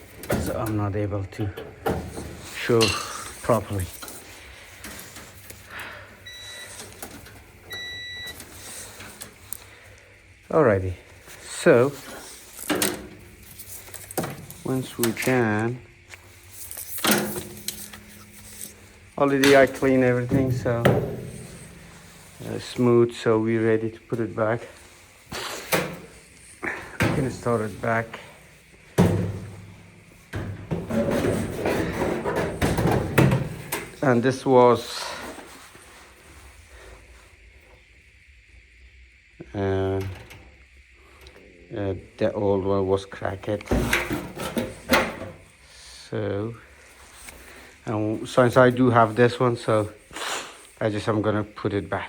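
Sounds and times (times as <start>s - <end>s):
knocks and rubbing of dryer parts: 0.0s - 5.6s, 11.6s - 23.2s, 25.4s - 34.2s, 43.7s - 45.5s
hollow ringing thump: 20.3s - 22.2s.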